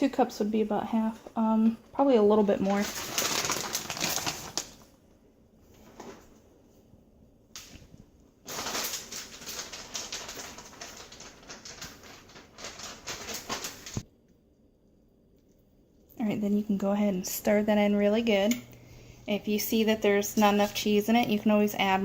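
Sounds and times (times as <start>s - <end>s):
plastic bag crinkling: 2.4s - 5.0s, 7.6s - 14.0s.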